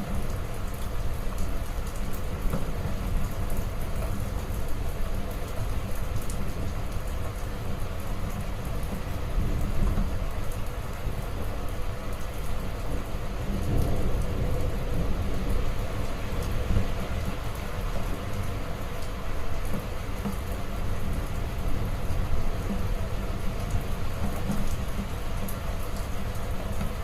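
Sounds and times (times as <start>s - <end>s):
heavy rain falling: 0.0s - 27.0s
low rumble of thunder: 12.7s - 18.2s.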